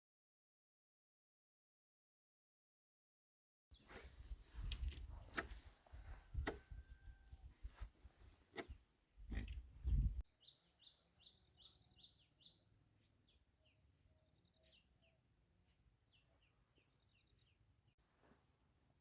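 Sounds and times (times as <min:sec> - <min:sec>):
small bird chirping: 0:08.6 - 0:15.3.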